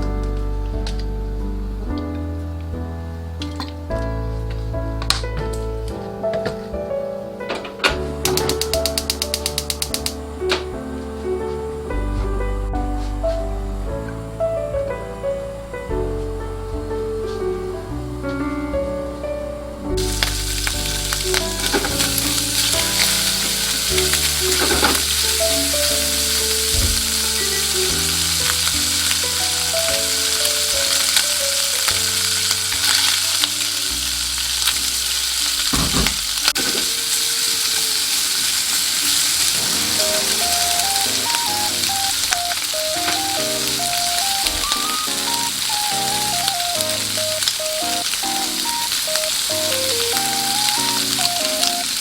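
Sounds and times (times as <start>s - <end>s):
light background music: 0.0s - 52.0s
food sizzling in oil: 20.0s - 52.0s.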